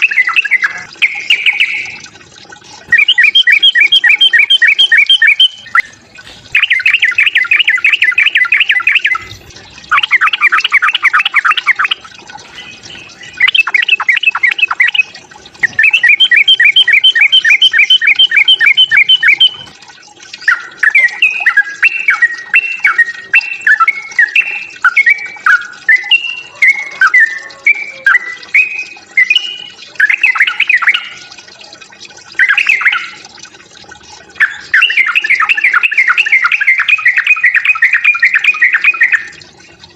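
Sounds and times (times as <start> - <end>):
bird whistled notes: 2.9 - 5.9, 15.6 - 19.6, 20.5 - 31.1.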